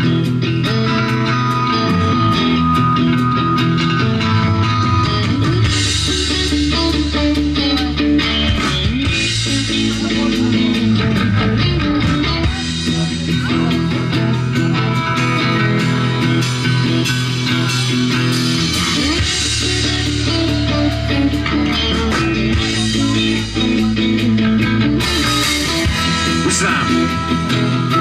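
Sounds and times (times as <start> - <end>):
rock band playing: 0.0 - 28.0.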